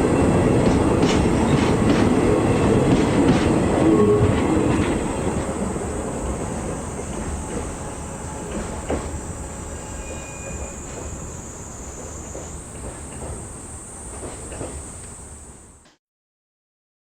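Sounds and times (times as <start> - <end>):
freight train rumbling past: 0.0 - 15.8
faint wheel squeal: 9.7 - 12.6
wheels clicking over rail joints: 14.1 - 15.2.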